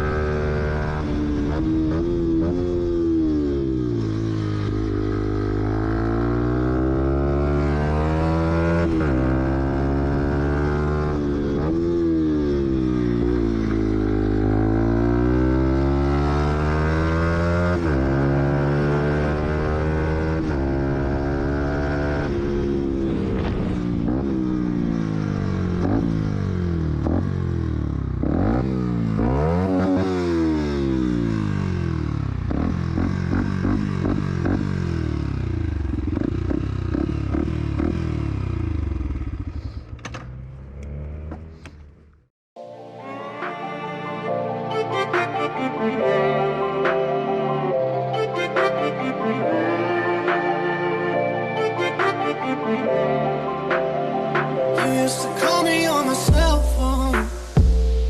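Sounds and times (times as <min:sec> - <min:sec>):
motorcycle engine shifting gears: 0:00.0 - 0:42.3.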